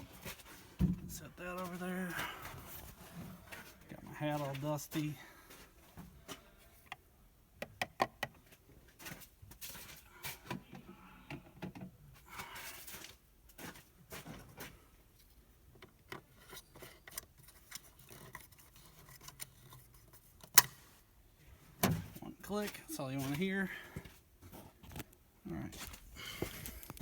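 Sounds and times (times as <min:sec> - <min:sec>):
parts clicking and rustling: 0:25.8 - 0:27.0.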